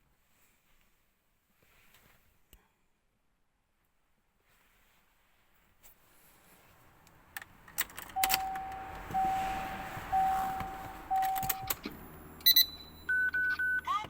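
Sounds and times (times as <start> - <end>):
keys jangling and clicking: 7.6 - 9.2, 10.5 - 12.7
car warning chime beeping: 7.8 - 14.0
low steady hum: 8.2 - 14.0.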